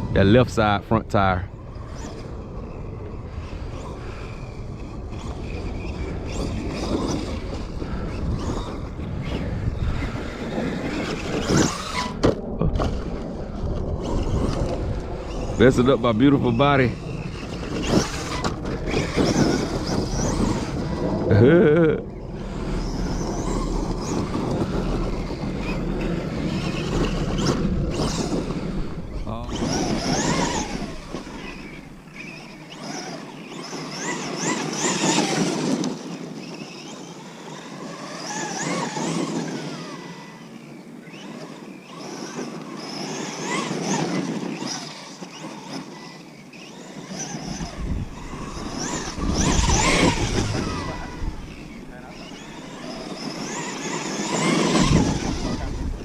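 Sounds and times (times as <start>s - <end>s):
rc truck electric motor whining: 1.2s - 56.0s
rough running gear noise: 47.4s - 56.0s.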